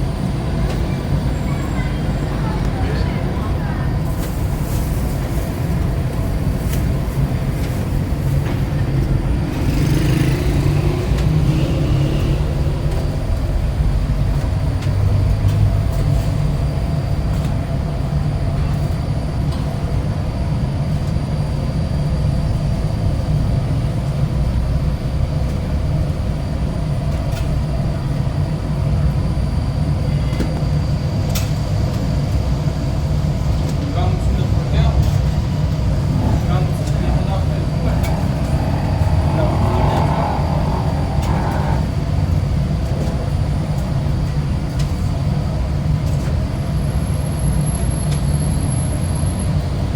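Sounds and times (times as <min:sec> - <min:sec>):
vehicle engine humming: 0:34.5 - 0:45.3.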